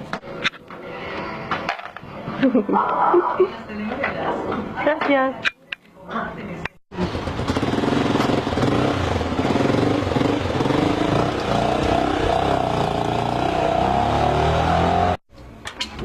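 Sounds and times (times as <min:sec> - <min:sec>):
vehicle engine running: 0:07.0 - 0:14.2.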